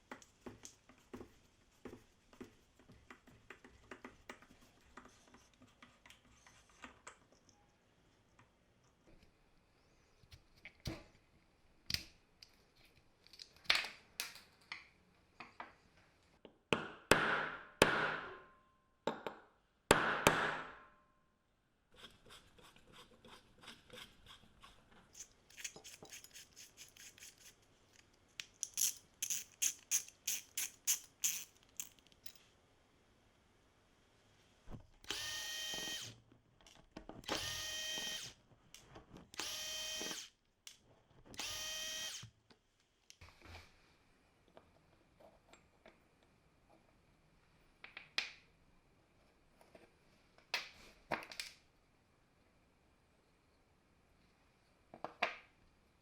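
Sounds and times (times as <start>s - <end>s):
electric drill motor whine: 35.1s - 36.2s, 37.3s - 38.3s, 39.4s - 40.3s, 41.4s - 42.3s.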